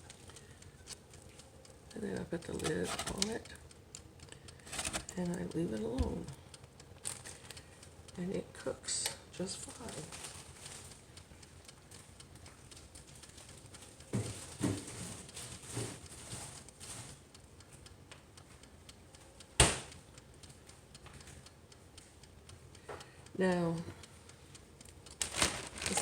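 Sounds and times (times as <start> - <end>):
kitchen items clattering: 4.7 - 5.1
sharp click: 19.6 - 20.0.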